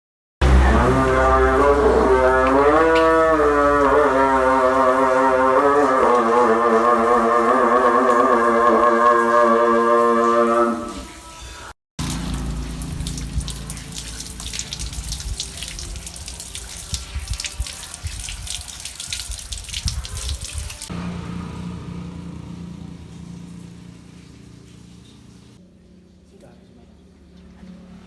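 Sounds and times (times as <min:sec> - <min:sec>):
low hum: 0:12.0 - 0:16.7, 0:20.8 - 0:26.2
tap water splashing into sink: 0:12.0 - 0:20.9.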